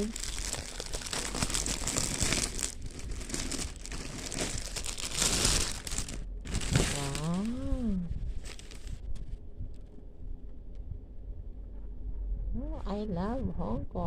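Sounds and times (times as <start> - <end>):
person humming: 0.0 - 0.2
packaging crinkling and rustling: 0.0 - 9.3.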